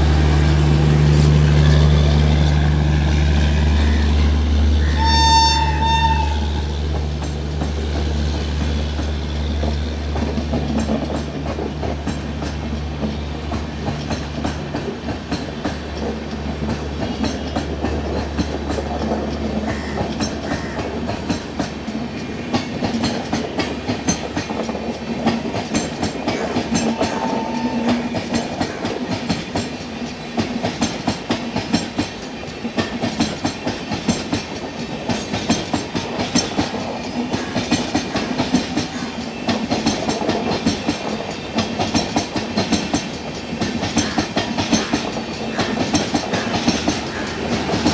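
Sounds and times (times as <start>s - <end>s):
locomotive low hum: 0.0s - 20.2s, 45.8s - 47.9s
train wheels clattering on rails: 0.0s - 47.9s
train horn blast: 3.8s - 7.0s, 26.4s - 28.4s.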